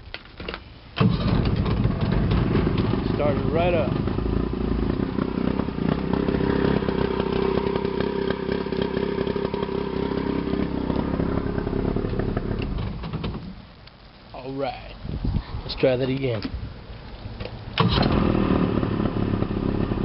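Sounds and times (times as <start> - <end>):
outboard engine running: 1.0 - 12.9, 17.8 - 20.0.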